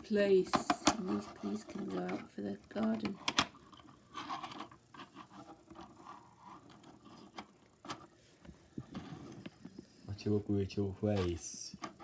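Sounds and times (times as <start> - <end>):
plastic toy pieces scraping: 0.7 - 8.1.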